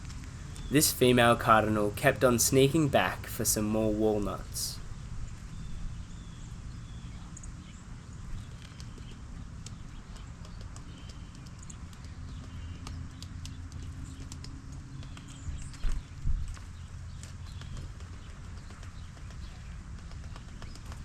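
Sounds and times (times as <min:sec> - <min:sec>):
low background hum: 0:00.0 - 0:07.3.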